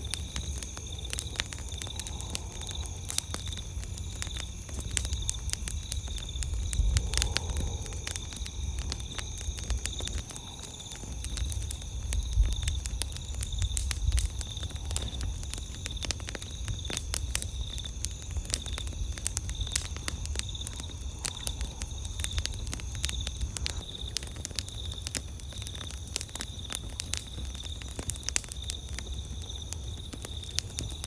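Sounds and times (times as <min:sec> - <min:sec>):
campfire crackling and popping: 0:00.0 - 0:31.0
low rumble: 0:05.0 - 0:11.6.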